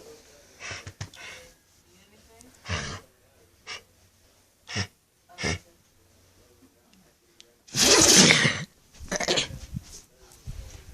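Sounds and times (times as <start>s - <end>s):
dog sneezing: 7.7s - 8.7s.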